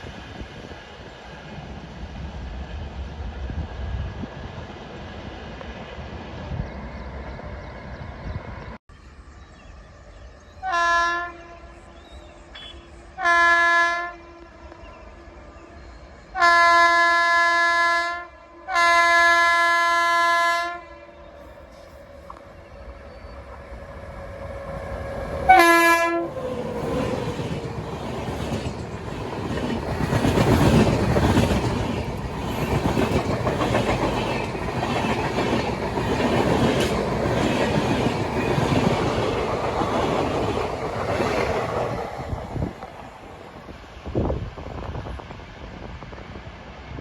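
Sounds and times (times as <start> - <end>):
train horn blast: 10.6 - 12.0, 12.6 - 14.7, 16.4 - 21.1, 24.2 - 26.4
train wheels clattering over rails: 26.3 - 43.0.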